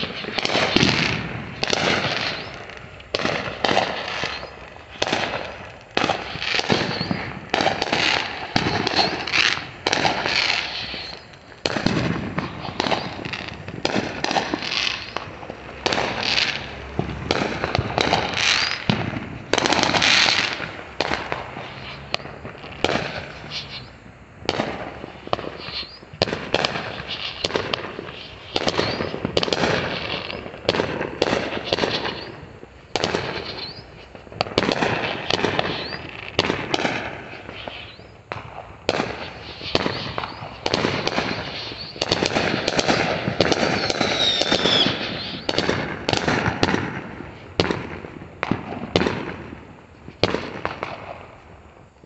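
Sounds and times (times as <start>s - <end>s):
fireworks bangs and crackling: 0.0s - 52.0s
faint wavering whistle: 43.7s - 45.5s.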